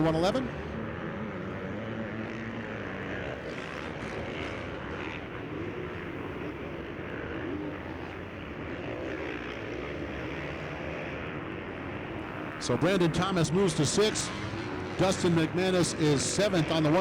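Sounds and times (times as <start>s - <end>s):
motocross bike engines: 0.0s - 17.0s.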